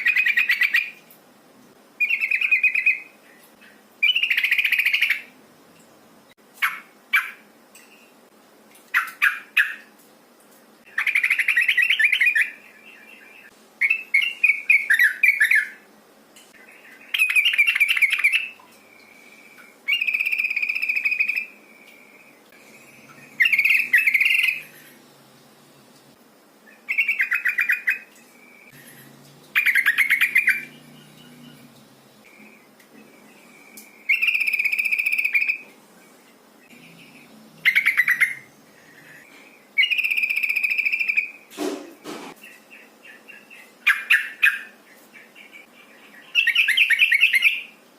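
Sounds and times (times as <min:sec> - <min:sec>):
bird bubbly chattering call: 0:29.5 - 0:31.8.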